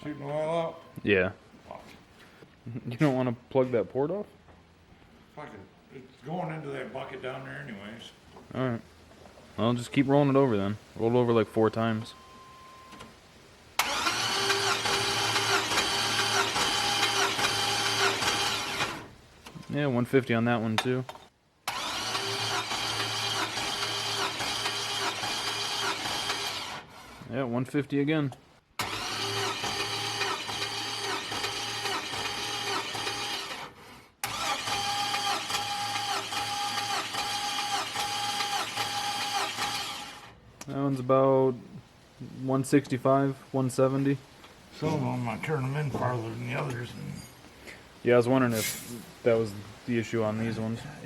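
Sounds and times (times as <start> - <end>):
starter motor cranking engine: 13.8 - 19.1, 21.6 - 27.2, 28.8 - 40.4.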